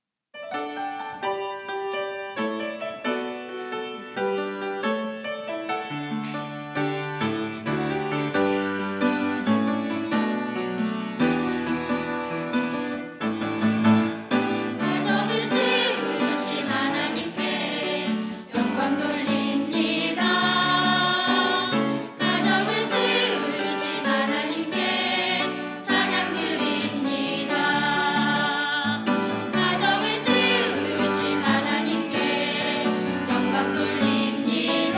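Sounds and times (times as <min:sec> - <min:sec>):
gospel singing voices: 0:14.1 - 0:34.9.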